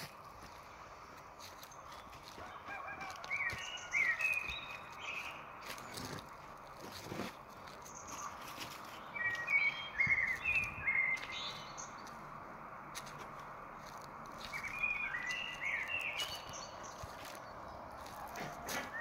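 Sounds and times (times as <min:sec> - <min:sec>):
footsteps on a forest trail: 0:00.0 - 0:19.0
songbird chirping: 0:00.0 - 0:19.0.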